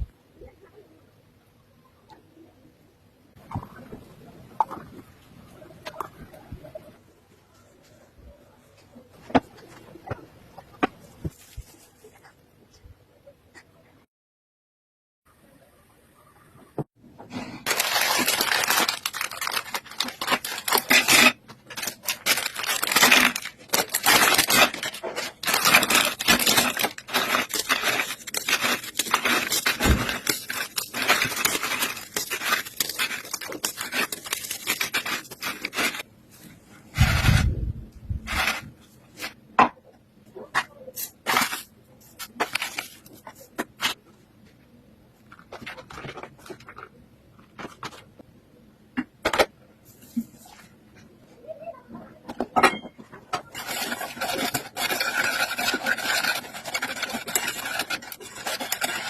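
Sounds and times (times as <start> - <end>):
scraping and rustling: 17.3 - 37.6, 38.2 - 39.4, 40.4 - 44.0, 53.4 - 59.0.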